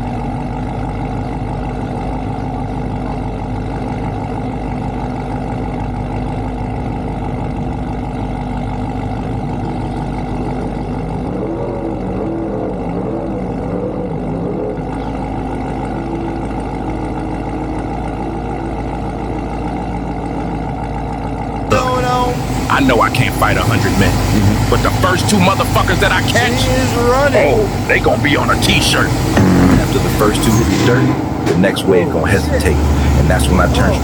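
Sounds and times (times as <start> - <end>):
car engine idling: 0.0 - 34.0
wavering tone: 10.6 - 17.8.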